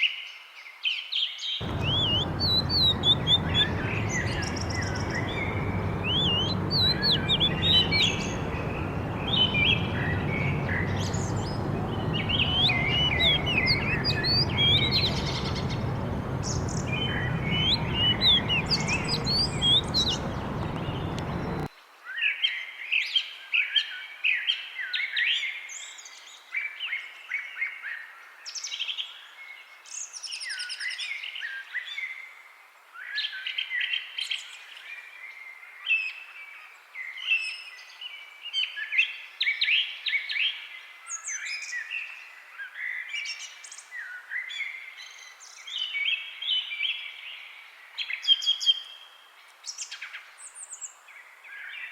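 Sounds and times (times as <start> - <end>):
songbirds singing and chirping: 1.6 - 21.7
steady low background noise: 1.6 - 21.7.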